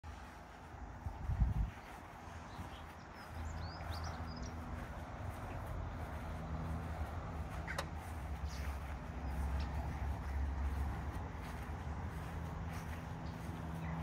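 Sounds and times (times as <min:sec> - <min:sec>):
steady low hum: 0:00.1 - 0:14.0
bird chirps: 0:01.7 - 0:04.9.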